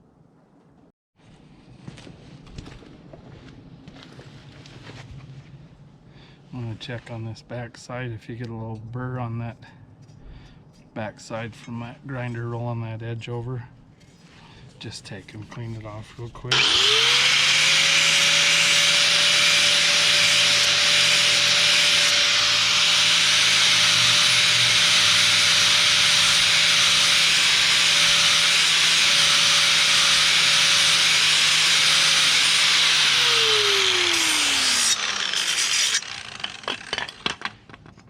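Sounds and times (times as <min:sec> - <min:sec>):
motor winding down whine: 0:16.5 - 0:25.8, 0:27.2 - 0:36.7
power grinder grinding steel: 0:16.5 - 0:37.5.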